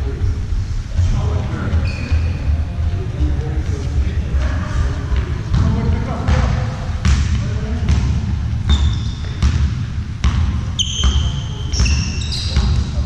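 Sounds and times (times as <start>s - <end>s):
sneakers squeaking on floor: 1.6s - 2.7s, 8.6s - 13.0s
basketball bouncing on court: 5.2s - 13.0s.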